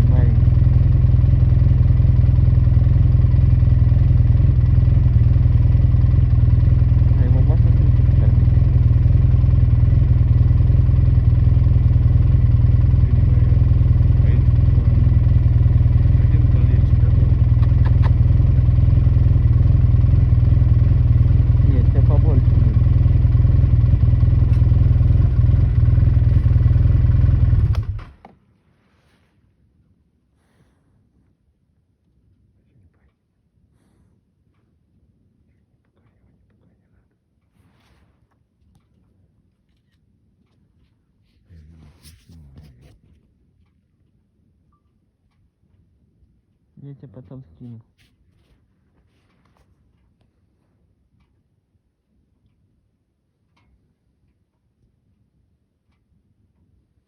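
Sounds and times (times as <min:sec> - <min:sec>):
vehicle engine idling: 0:00.0 - 0:28.2.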